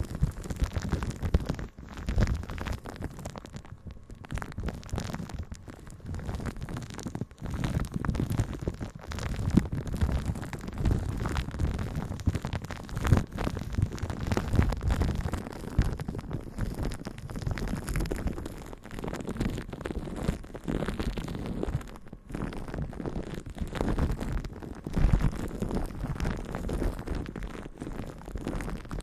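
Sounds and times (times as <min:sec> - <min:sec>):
crackling and rubbing close to microphone: 0:00.0 - 0:29.0.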